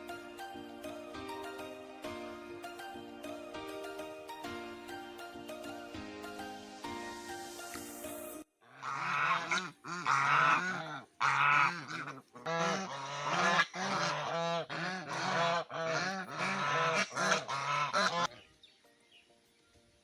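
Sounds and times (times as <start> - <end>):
ducks calling: 8.7 - 18.4.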